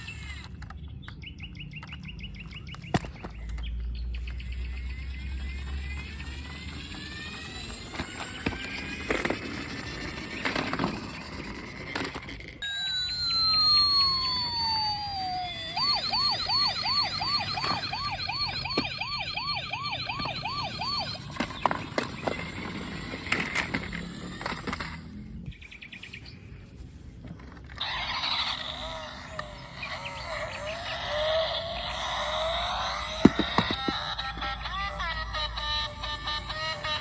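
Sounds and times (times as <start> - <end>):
toy electronic siren wailing: 0.0 - 0.6, 4.5 - 25.1, 27.8 - 37.0
electronic tone jingle: 12.6 - 21.2.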